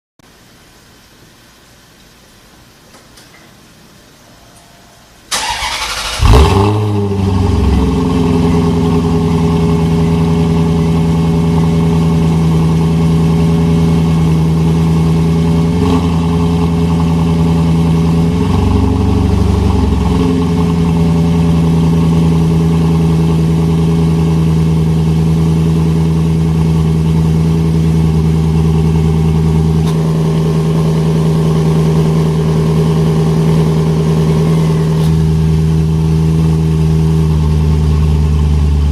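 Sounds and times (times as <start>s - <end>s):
car starter cranking: 5.3s - 6.9s
car engine revving and idling: 5.3s - 38.9s.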